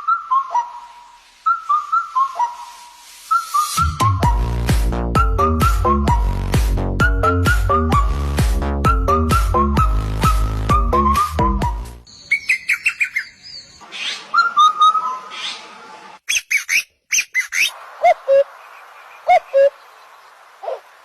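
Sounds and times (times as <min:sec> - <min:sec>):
parrots chirping and whistling: 0:00.0 - 0:04.0, 0:12.1 - 0:15.6, 0:16.2 - 0:18.5
background music: 0:03.6 - 0:12.1.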